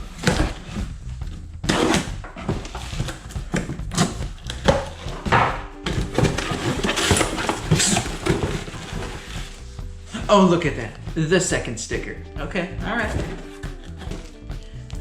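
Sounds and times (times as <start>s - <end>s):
hands rummaging through packaging: 5.9s - 9.7s.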